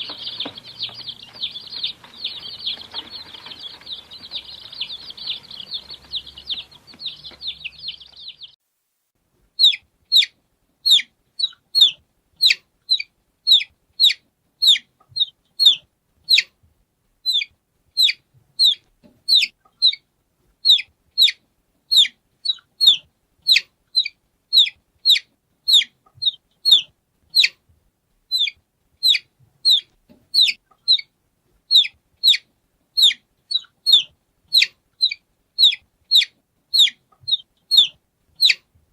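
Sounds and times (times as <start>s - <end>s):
chorus of chicks chirping: 0.0s - 8.6s, 9.6s - 16.5s, 17.2s - 20.0s, 20.6s - 27.6s, 28.3s - 31.1s, 31.7s - 38.7s
single loud chick peeps: 0.0s - 8.6s, 9.6s - 16.5s, 17.2s - 20.0s, 20.6s - 27.6s, 28.3s - 31.1s, 31.7s - 38.7s.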